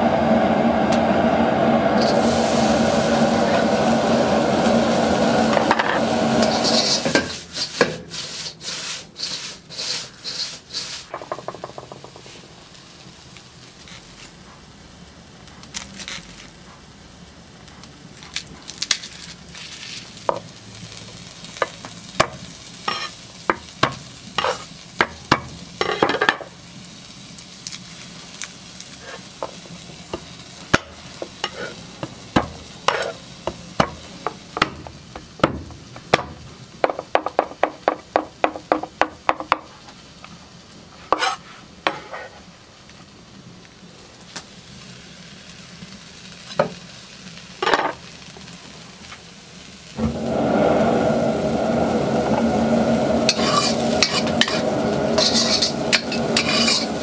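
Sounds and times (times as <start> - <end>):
onions sizzling in a wok: 0.0 - 57.0
stirring and scraping in a wok: 5.6 - 12.4, 21.1 - 26.5, 27.6 - 34.7, 40.9 - 42.5, 52.3 - 57.0.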